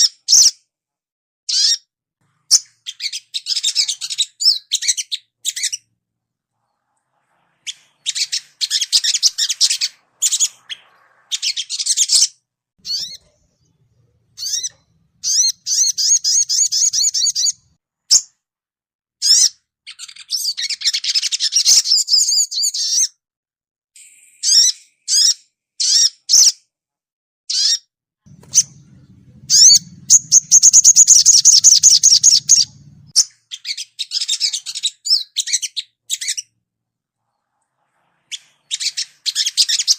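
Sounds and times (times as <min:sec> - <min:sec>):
birds chirping and trilling: 0:01.5 - 0:05.9, 0:06.6 - 0:18.2, 0:27.5 - 0:36.6, 0:38.2 - 0:39.9.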